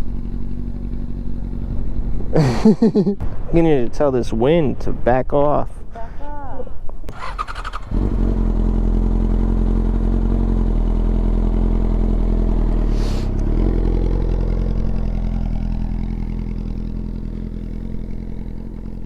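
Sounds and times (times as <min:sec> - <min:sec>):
motorcycle engine idling: 0:00.0 - 0:02.9, 0:07.1 - 0:19.0.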